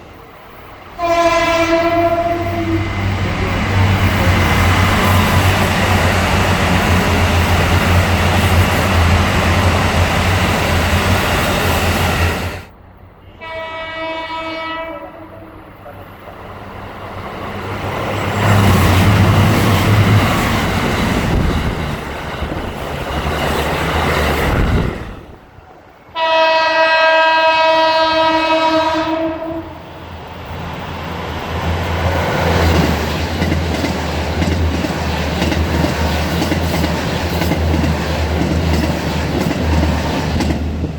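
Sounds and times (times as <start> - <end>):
diesel railcar engine drone: 0.0 - 40.9
train horn blast: 1.0 - 3.1, 13.3 - 15.6, 26.1 - 29.9
train wheel clatter: 32.0 - 40.9.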